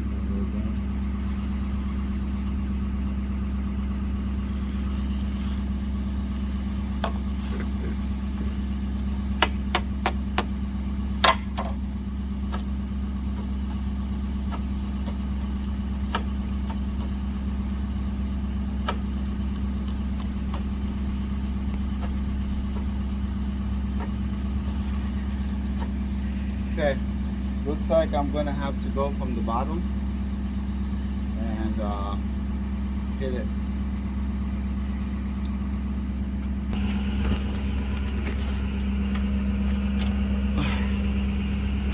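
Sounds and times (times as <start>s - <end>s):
truck engine idling: 0.0s - 41.9s
sharp metal knocks: 9.4s - 10.5s, 11.2s - 11.8s.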